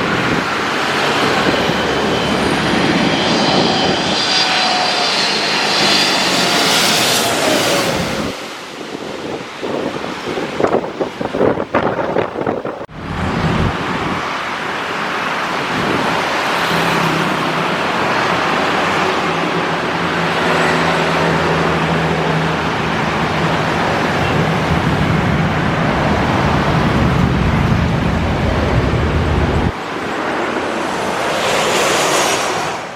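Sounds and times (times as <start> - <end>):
road traffic roar: 0.0 - 32.9
low engine drone: 12.9 - 14.9, 17.8 - 32.9.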